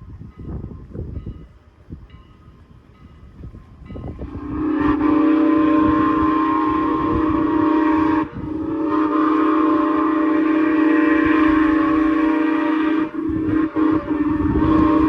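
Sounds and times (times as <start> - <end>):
train horn blasts: 4.0 - 15.0.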